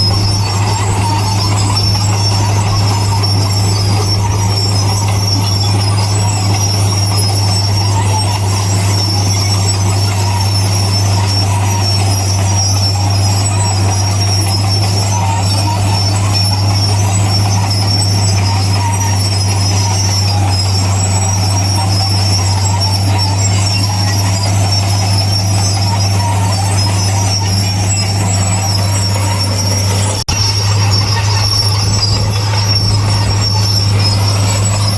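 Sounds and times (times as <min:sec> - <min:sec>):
diesel engine drone: 0:00.0 - 0:34.9
metallic squealing of tracks: 0:00.0 - 0:34.9.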